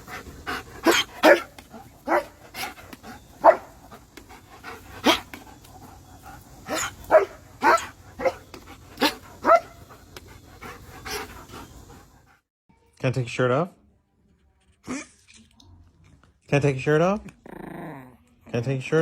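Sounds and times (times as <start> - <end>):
dog barking: 0.8 - 2.7, 3.4 - 3.8, 5.0 - 5.3, 6.7 - 9.8.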